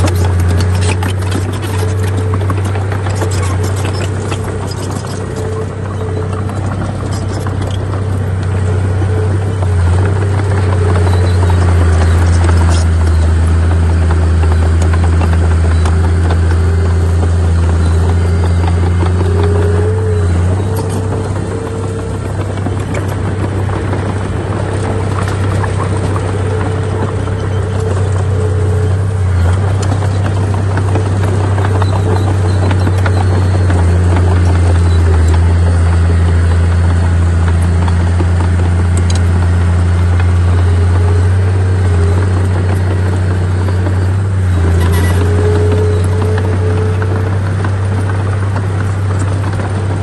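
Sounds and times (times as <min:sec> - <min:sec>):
heavy diesel engine humming: 0:00.0 - 0:50.0.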